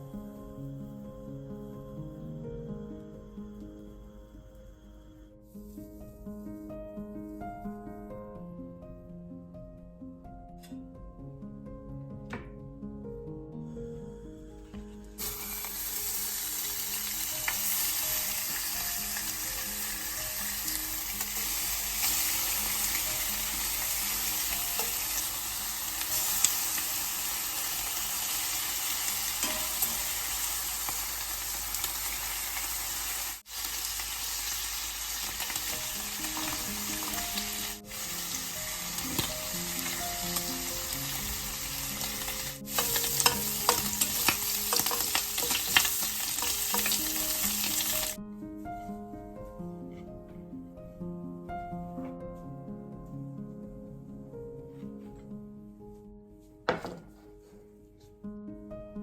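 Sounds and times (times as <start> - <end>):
soft background music: 0.0 - 59.0
oil popping crackles: 15.2 - 28.6, 29.3 - 48.2
food sizzling in oil: 15.2 - 48.2.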